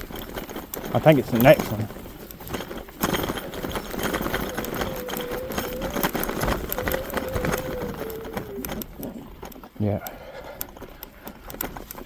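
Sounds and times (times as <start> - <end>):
bike rattling over rough ground: 0.0 - 12.0
electric motor whining: 3.5 - 9.0.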